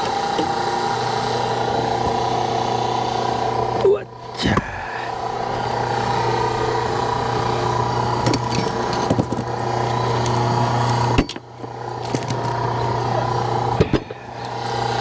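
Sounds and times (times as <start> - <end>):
log splitter engine running: 0.0 - 15.0.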